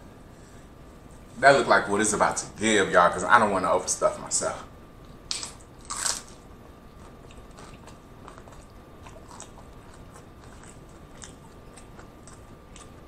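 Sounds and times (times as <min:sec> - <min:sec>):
person chewing food: 0:05.3 - 0:13.0.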